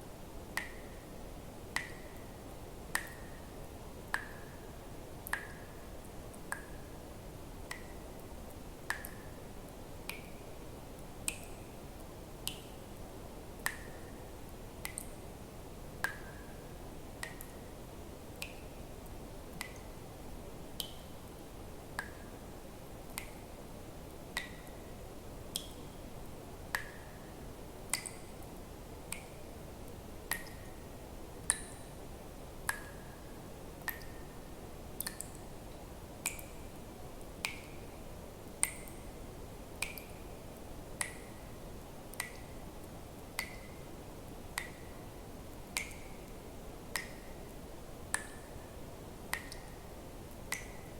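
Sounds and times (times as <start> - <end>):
faint hiss: 0.0 - 50.9.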